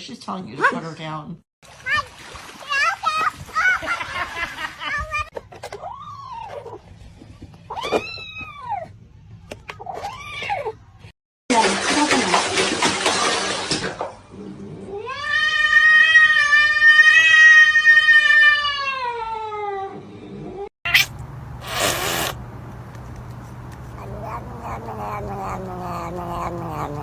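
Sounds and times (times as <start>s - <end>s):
brief noisy burst: 21.0s - 22.4s
cat yowling: 23.9s - 27.0s.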